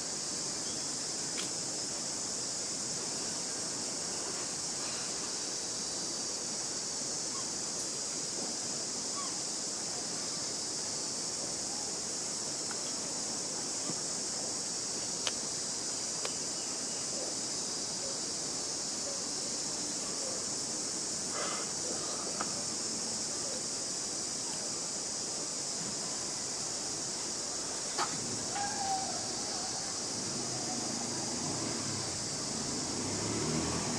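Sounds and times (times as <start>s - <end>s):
high-pitched insect chorus: 0.0s - 33.9s.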